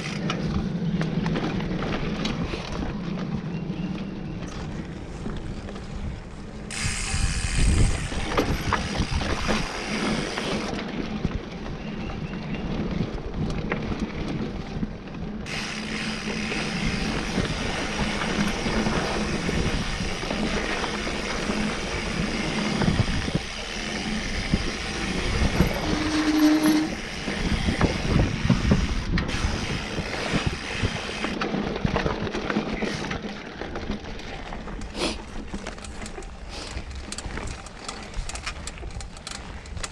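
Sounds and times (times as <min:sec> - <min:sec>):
bike chain and frame rattling: 0:00.0 - 0:39.9
bike tyres on dirt trail: 0:00.0 - 0:39.9
brief squeal: 0:25.8 - 0:27.0.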